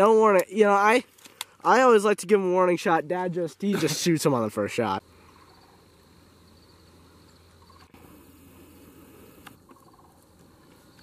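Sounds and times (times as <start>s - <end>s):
faint outdoor ambience: 0.0s - 11.0s
small clicks: 1.1s - 1.6s, 9.4s - 9.8s.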